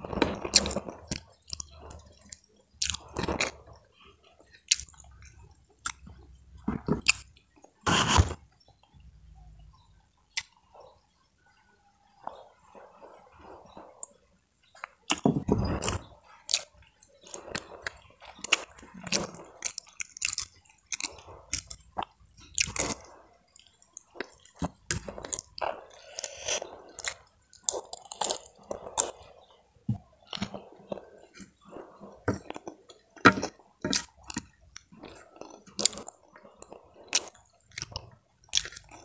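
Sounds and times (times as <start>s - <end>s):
food crunch: 0.0s - 3.7s, 4.4s - 7.7s, 14.8s - 29.4s, 30.2s - 39.0s
person chewing: 0.0s - 8.3s, 10.3s - 10.6s, 14.8s - 39.0s
wet mouth clicks and smacks: 37.1s - 39.0s.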